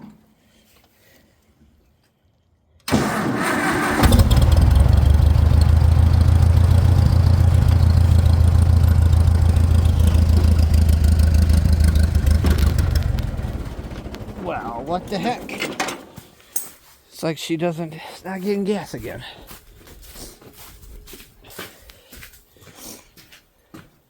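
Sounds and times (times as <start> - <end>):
starter motor cranking: 2.9 - 16.1
tractor engine running: 2.9 - 16.2.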